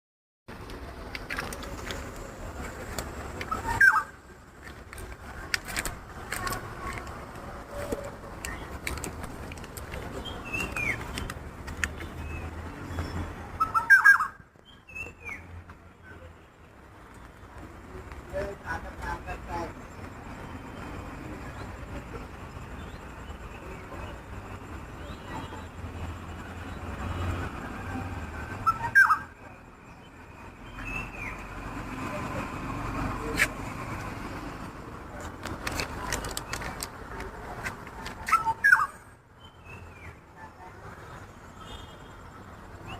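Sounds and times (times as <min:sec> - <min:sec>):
bird calls: 0:03.4 - 0:04.2, 0:10.0 - 0:15.5, 0:28.6 - 0:29.3, 0:38.1 - 0:40.2.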